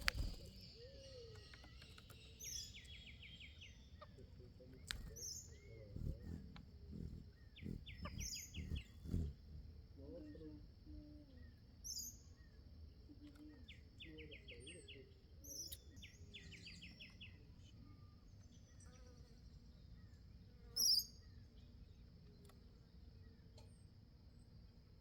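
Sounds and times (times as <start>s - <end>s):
small birds chirping: 0.0s - 25.0s
high insect buzz: 4.9s - 10.0s.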